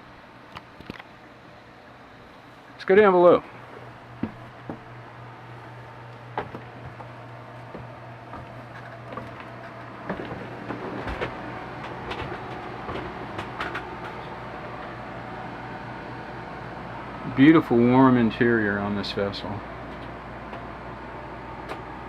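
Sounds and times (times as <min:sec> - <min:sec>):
air conditioner humming: 0:00.0 - 0:22.0
footsteps and handling knocks: 0:03.8 - 0:05.0, 0:05.7 - 0:14.3.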